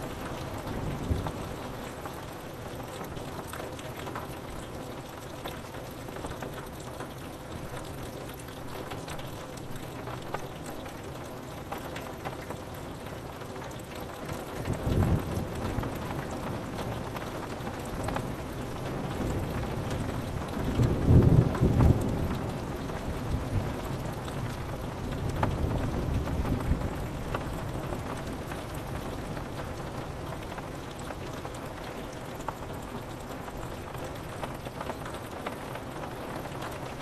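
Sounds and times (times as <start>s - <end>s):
rain pattering on window: 0.0s - 37.0s
raindrop ticks: 0.0s - 37.0s.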